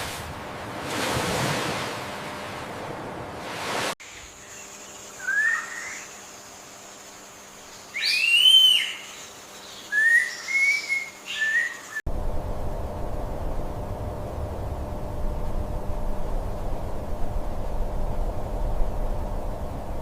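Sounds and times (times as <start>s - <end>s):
high whistled animal calls: 5.2s - 6.1s, 8.0s - 9.1s
steady rushing noise: 12.1s - 20.0s.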